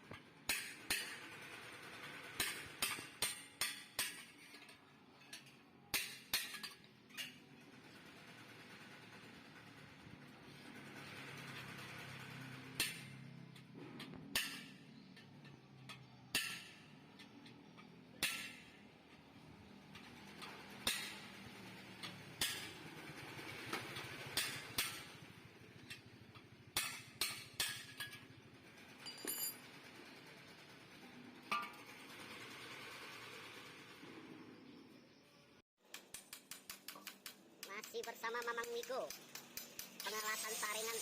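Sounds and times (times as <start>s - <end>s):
hammer striking metal: 0.5s - 1.3s, 2.4s - 4.3s, 14.1s - 15.3s, 15.9s - 17.3s, 18.2s - 18.8s, 20.4s - 21.3s, 24.4s - 25.2s, 25.9s - 28.2s, 35.9s - 40.2s.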